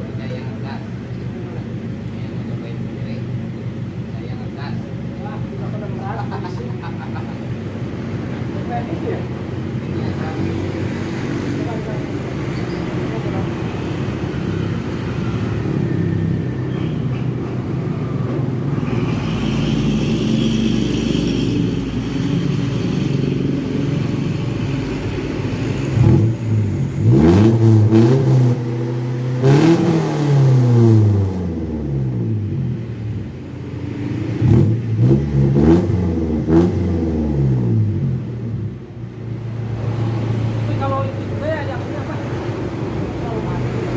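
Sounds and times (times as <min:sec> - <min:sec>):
engine revving hard: 0:18.7 - 0:32.8, 0:34.0 - 0:38.6.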